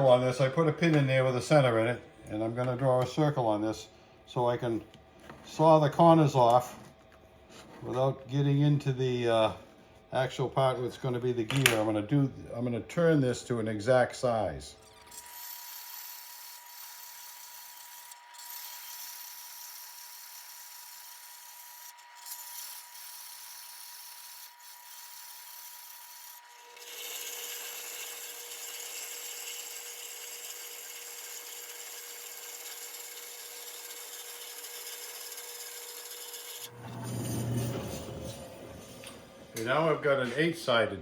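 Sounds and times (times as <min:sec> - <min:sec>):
power saw cutting metal: 0:14.8 - 0:40.1.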